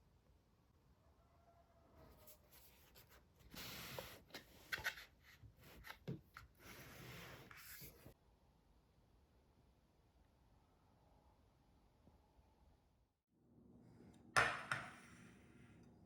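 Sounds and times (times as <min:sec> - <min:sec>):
rustling and scraping handling: 0:02.1 - 0:08.2.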